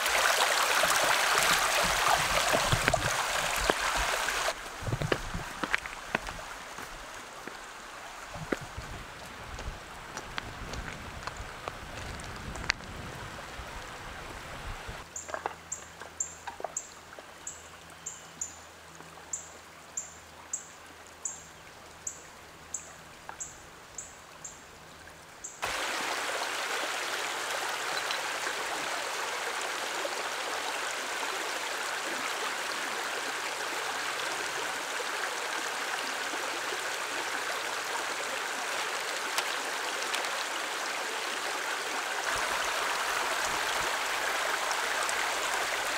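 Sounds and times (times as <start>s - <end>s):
stream rushing: 0.0s - 15.1s, 25.6s - 45.9s.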